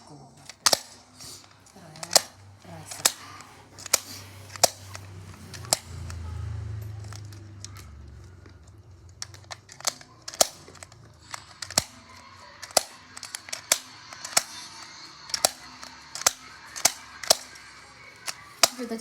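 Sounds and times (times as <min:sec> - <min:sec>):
sharp plastic clicks: 0:00.4 - 0:19.0.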